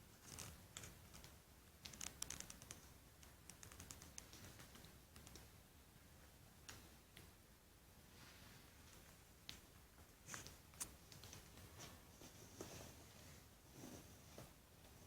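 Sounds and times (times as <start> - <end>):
faint small clicks and taps: 0.2 - 5.6, 8.8 - 12.0.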